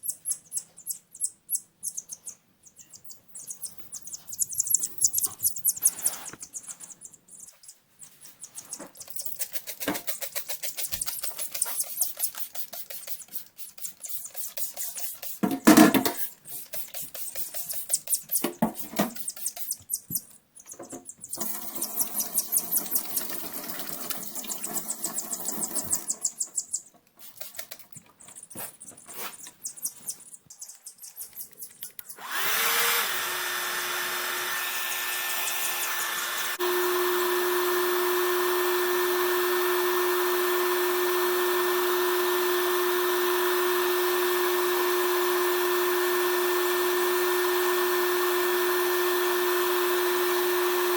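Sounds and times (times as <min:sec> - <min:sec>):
hair dryer humming: 0:32.2 - 0:50.9.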